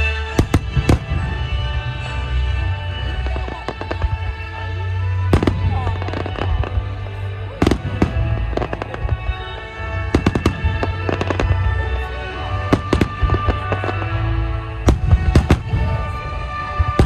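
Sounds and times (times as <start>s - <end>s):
music: 0.0s - 17.0s
fireworks booming and cracking: 0.2s - 17.0s.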